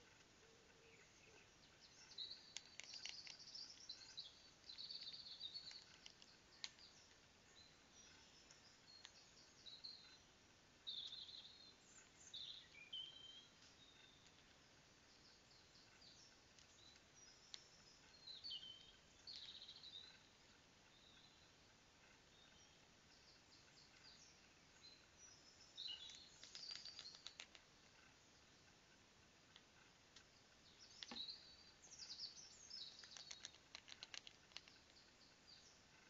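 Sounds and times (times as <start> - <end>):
songbirds chirping and trilling: 0.0 - 36.0.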